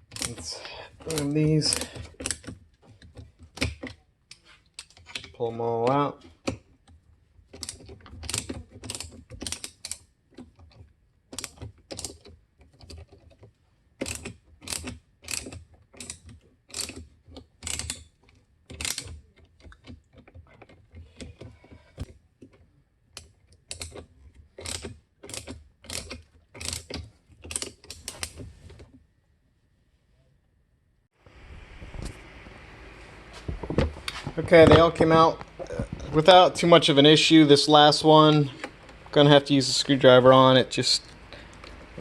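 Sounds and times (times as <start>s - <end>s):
ratchet clicking: 0.0s - 2.6s, 14.0s - 17.0s, 18.7s - 19.2s, 24.6s - 28.4s.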